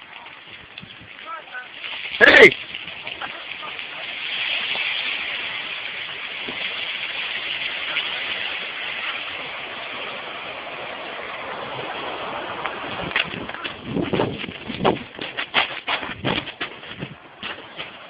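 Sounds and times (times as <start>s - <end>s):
fast-flowing stream water: 1.9s - 15.3s.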